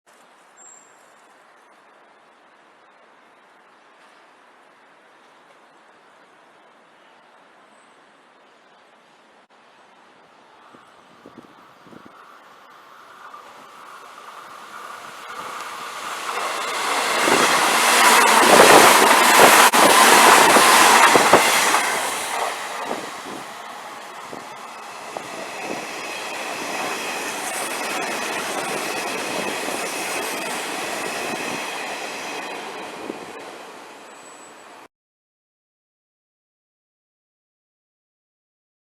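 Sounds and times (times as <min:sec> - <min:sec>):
train passing through station: 0:00.1 - 0:34.9
wheels clacking over rail joints: 0:13.1 - 0:33.8.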